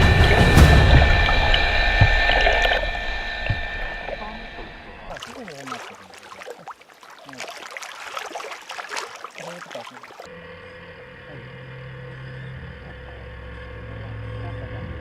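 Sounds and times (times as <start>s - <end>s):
boat motor humming: 0.0s - 10.3s
rushing splashy water: 0.0s - 10.3s.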